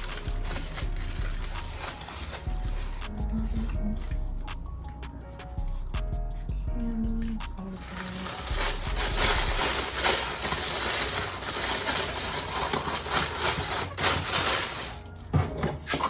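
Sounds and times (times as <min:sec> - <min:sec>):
packing material crinkling: 0:00.0 - 0:04.2, 0:07.2 - 0:15.3.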